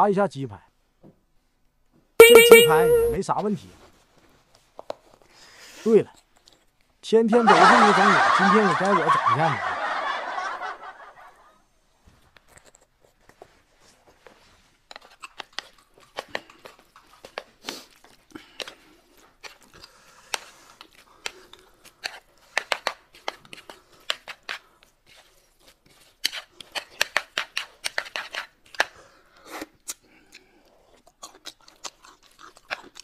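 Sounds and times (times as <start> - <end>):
crunching of crisp food: 14.9 - 33.0.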